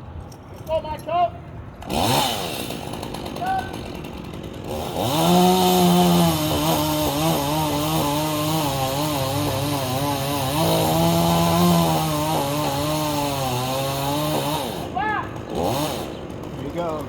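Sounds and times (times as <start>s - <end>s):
chainsaw cutting wood: 1.7s - 17.0s.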